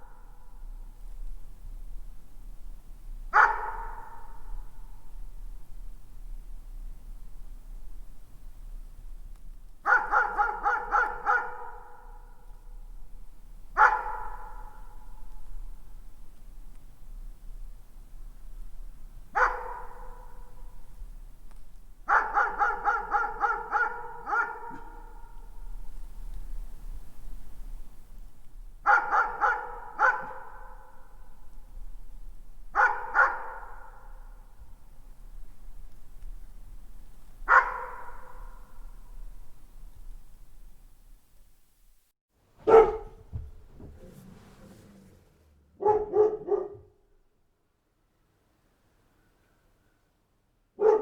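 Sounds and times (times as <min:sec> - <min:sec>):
distant dog barking: 0:03.3 - 0:05.0, 0:09.8 - 0:12.7, 0:13.7 - 0:15.6, 0:19.3 - 0:20.8, 0:22.0 - 0:25.9, 0:28.8 - 0:31.5, 0:32.7 - 0:34.7, 0:37.4 - 0:39.2, 0:42.6 - 0:47.2, 0:50.8 - 0:51.0.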